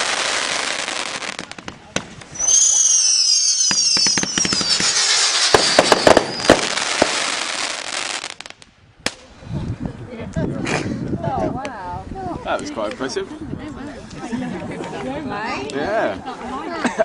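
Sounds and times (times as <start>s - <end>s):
firework crackling pops and bangs: 0.0s - 9.3s
firework whistles falling in pitch: 2.3s - 6.7s.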